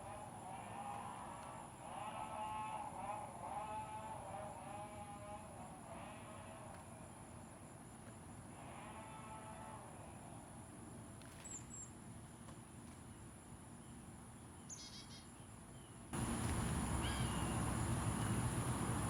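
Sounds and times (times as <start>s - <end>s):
songbirds chirping: 11.4s - 19.0s.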